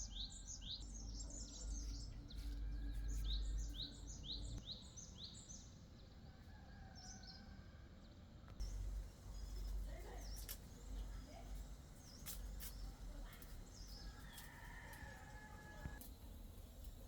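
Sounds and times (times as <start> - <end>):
small birds chirping: 0.0 - 6.2, 8.6 - 17.0
rooster crowing: 14.1 - 16.0.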